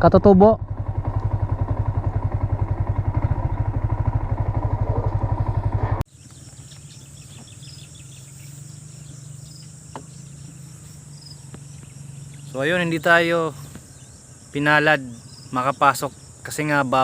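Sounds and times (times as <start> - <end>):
engine idling: 0.0 - 6.0.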